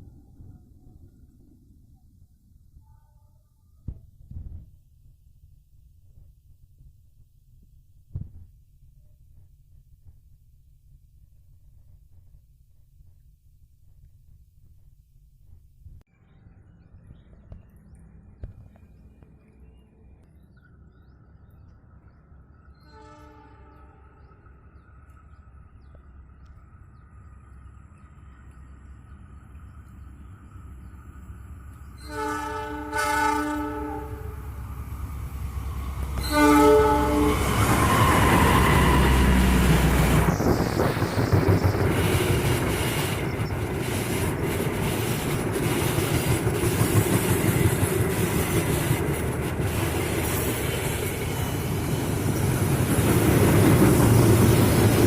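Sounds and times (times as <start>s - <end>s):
train rumble: 0.0s - 55.0s
locomotive horn: 22.8s - 24.3s, 32.0s - 34.6s, 35.8s - 39.6s.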